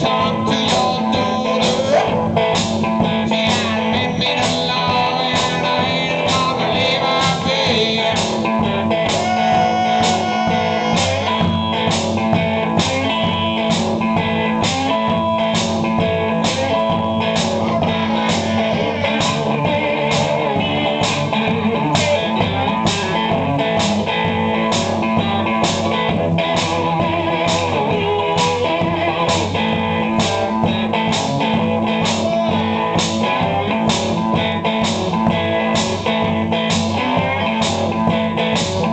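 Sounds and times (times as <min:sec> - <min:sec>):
blues-rock guitar playing: 0:00.0 - 0:38.9
steady drum beat: 0:00.0 - 0:38.9.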